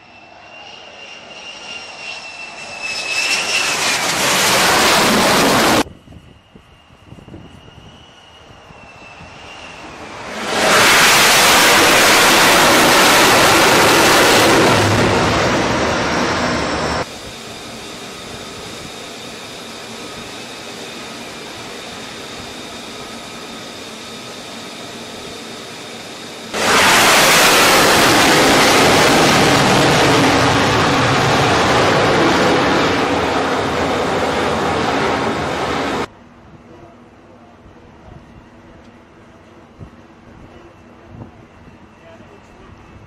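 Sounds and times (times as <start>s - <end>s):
jet engine roaring: 0.0s - 36.1s
steady jet rumble with whine: 0.0s - 36.2s.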